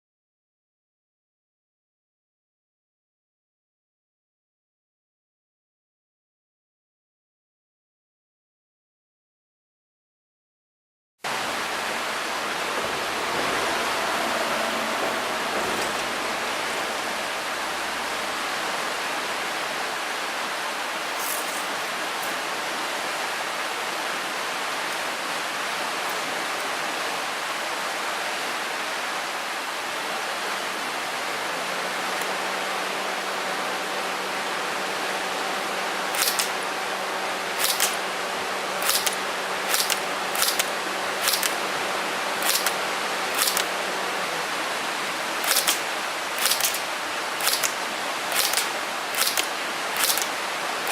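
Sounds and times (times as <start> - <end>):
steady hiss: 11.3 - 50.9
airsoft gun shots: 36.1 - 36.6, 37.6 - 38.0, 38.8 - 41.6, 42.4 - 42.8, 43.4 - 43.7, 45.4 - 45.8, 46.4 - 50.3.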